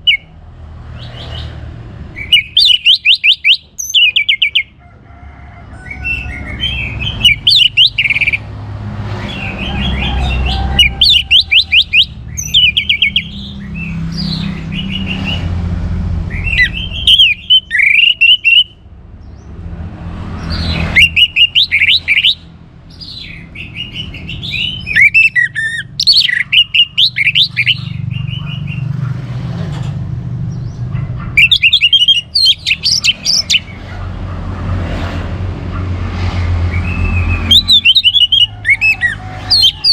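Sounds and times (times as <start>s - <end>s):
thrush singing whistled phrases: 0.0s - 0.4s, 2.2s - 4.8s, 6.0s - 8.5s, 9.2s - 15.5s, 16.3s - 18.8s, 20.6s - 28.8s, 31.4s - 33.8s, 36.7s - 39.9s.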